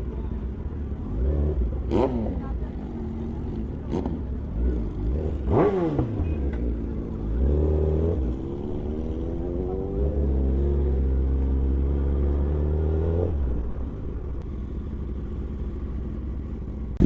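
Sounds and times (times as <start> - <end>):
high-performance engine revving: 1.0 - 13.8.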